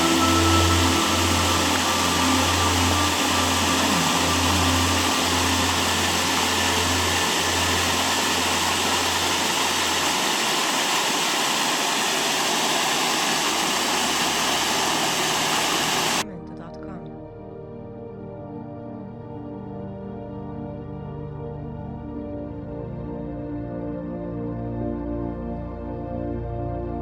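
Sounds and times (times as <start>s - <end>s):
low droning hum: 0.0s - 11.2s
water rushing: 0.0s - 16.2s.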